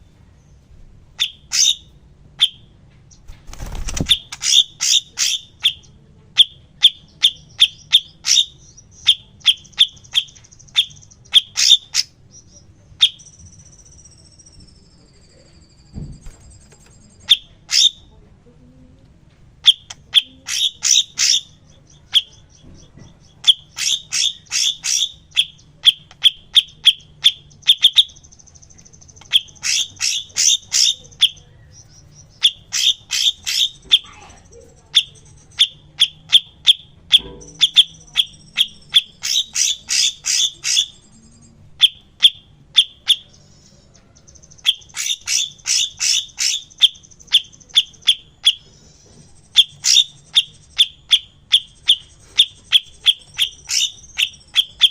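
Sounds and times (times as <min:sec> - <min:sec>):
bird chipping notes: 0:01.2 - 0:18.1, 0:19.6 - 0:54.9
bird high trills: 0:19.6 - 0:28.5, 0:29.3 - 0:54.9.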